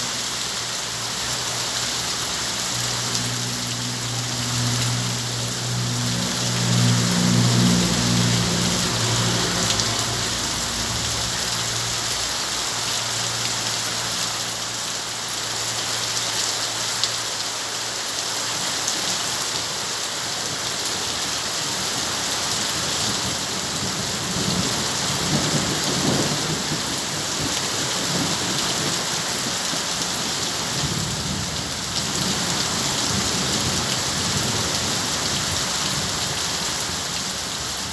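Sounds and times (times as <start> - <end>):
heavy rain hissing: 0.0 - 37.9
thunder rumbling: 5.7 - 12.7, 23.2 - 37.9.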